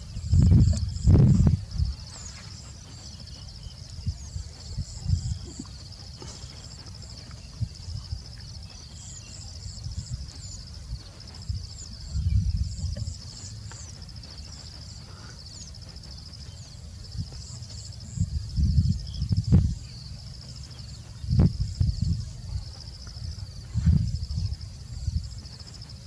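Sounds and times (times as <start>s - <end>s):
low rumbling thumps: 0.0s - 2.1s, 9.7s - 15.0s, 15.7s - 26.0s
birds chirping: 0.0s - 26.0s
insects trilling: 0.0s - 26.0s.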